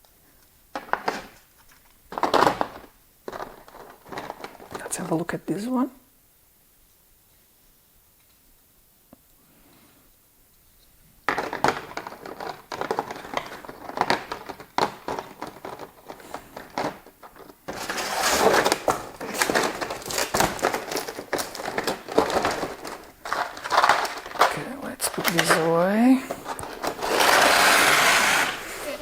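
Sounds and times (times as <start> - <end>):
plastic packaging crinkling: 0.7 - 5.4, 11.2 - 29.0.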